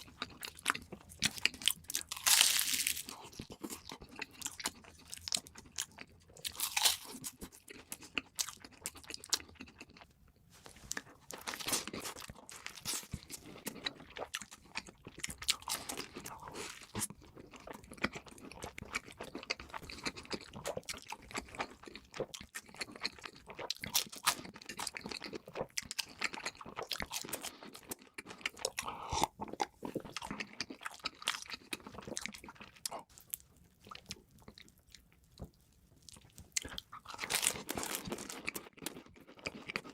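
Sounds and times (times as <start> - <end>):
crunchy chewing of crispy food: 0.0 - 39.9.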